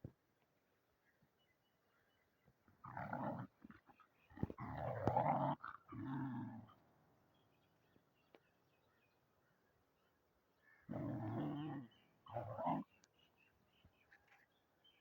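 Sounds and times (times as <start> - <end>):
dog growling: 4.4 - 6.8, 10.9 - 12.9.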